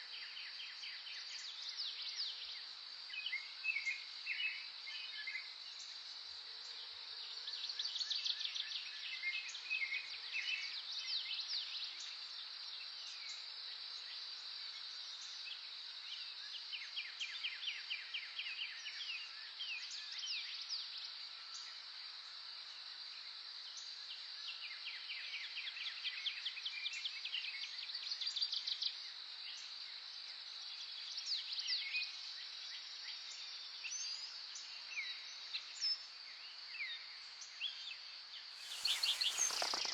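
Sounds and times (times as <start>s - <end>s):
birds singing trills: 38.6s - 39.9s
high-pitched insect drone: 38.6s - 39.9s.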